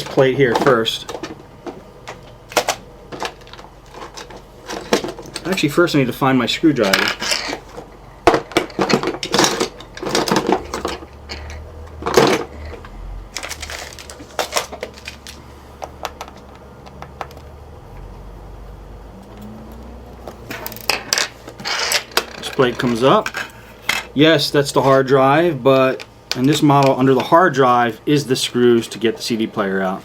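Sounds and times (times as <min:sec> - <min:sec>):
metal hand tools clattering: 0:08.5 - 0:12.8.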